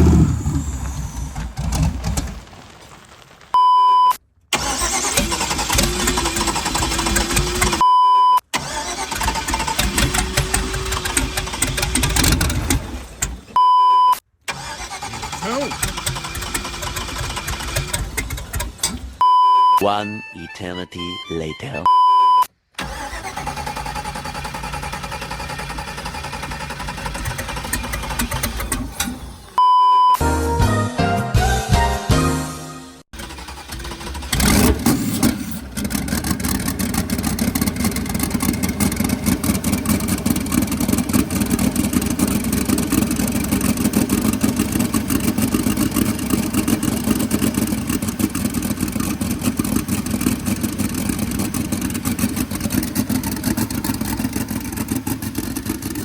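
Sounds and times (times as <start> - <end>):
car engine running unevenly: 0.0 - 3.6, 33.2 - 56.0
loud electronic beeps: 19.2 - 22.5.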